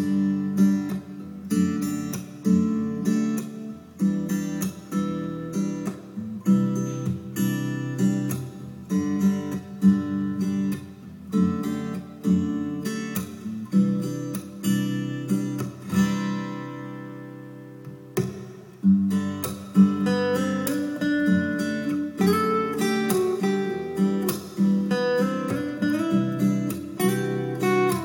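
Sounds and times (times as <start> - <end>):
acoustic guitar strumming chords: 0.0 - 28.0.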